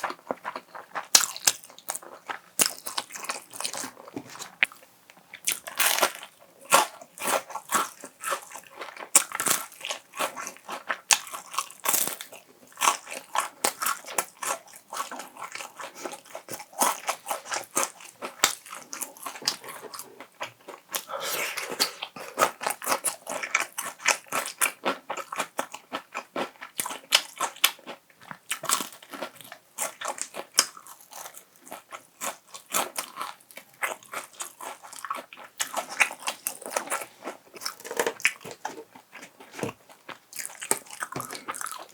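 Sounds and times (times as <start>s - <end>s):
person chewing crunchy food: 0.0s - 41.9s.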